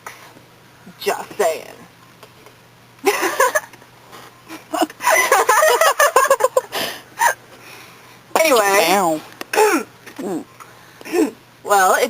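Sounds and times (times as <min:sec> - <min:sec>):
young women laughing: 0:03.0 - 0:03.8, 0:04.5 - 0:07.4.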